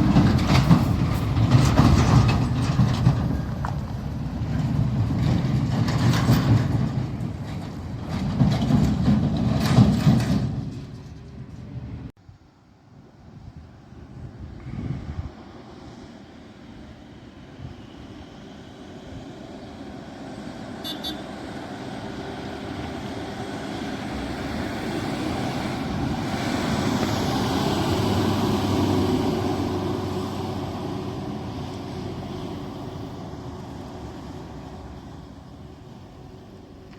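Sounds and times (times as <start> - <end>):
heavy vehicle passing by: 0.0 - 12.1, 14.2 - 36.9.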